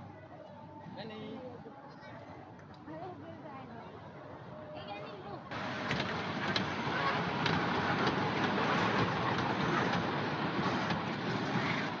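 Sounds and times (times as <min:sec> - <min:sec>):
toy train rumbling and rattling: 0:05.7 - 0:12.0.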